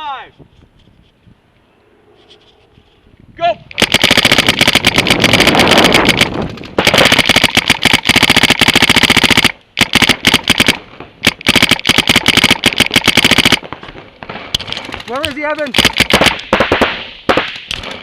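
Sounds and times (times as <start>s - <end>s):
paintball markers firing rapidly: 3.7s - 13.8s, 14.6s - 18.0s.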